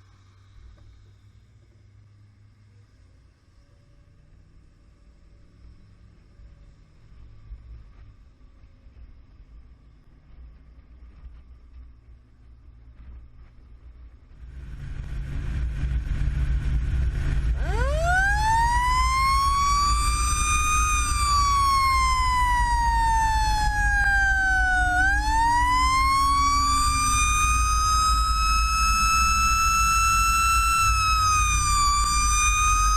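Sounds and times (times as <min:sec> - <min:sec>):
diesel engine rumble: 0:00.0 - 0:32.9
fire engine siren: 0:14.8 - 0:32.9.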